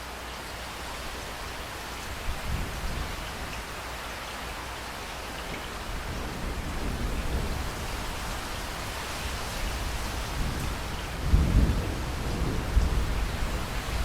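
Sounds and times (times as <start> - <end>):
heavy rain: 0.0 - 14.0
thunder rumbling: 5.8 - 14.0.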